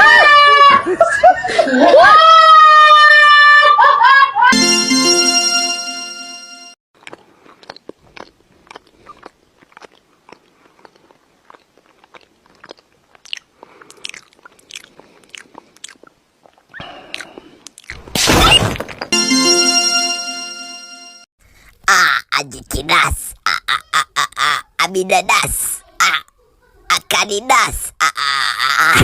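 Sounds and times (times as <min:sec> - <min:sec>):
held musical tone: 0:04.5 - 0:06.8, 0:19.1 - 0:21.3.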